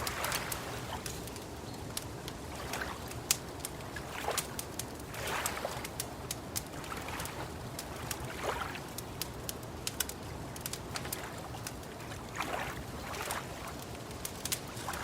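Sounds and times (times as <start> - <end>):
water lapping: 0.0 - 15.0
wood fire crackling: 0.0 - 15.0.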